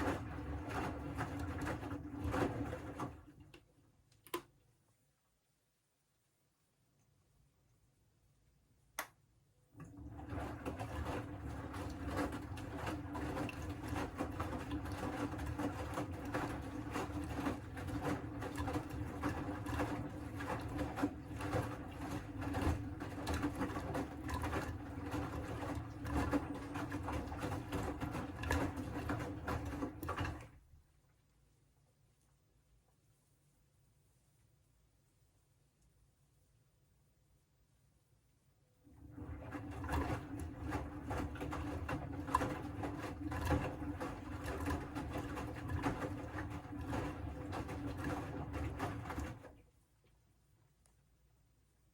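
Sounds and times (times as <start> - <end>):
washing machine drum grinding rumble: 0.0 - 3.4, 9.9 - 30.6, 38.9 - 49.6
click: 3.5 - 4.6, 9.0 - 9.2, 50.8 - 51.0.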